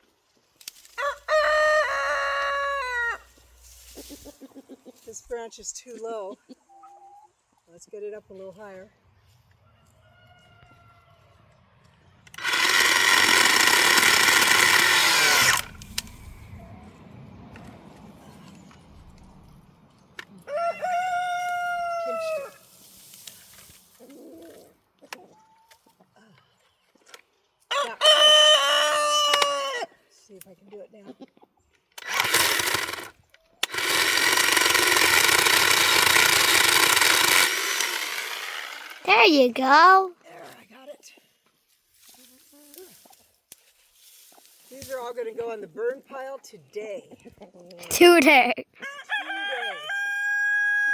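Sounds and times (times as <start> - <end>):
electric chainsaw whining: 12.3 - 16.5, 32.0 - 39.0.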